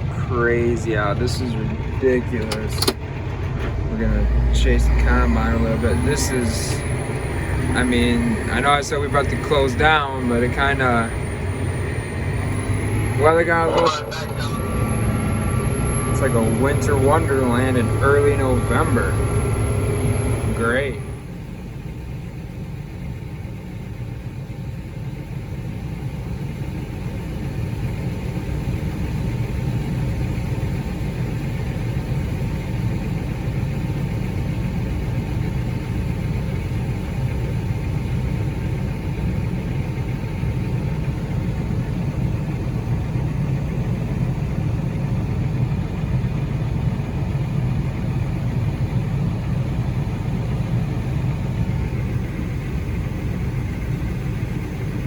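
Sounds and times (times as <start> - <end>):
vehicle engine rumbling: 0.0 - 55.0.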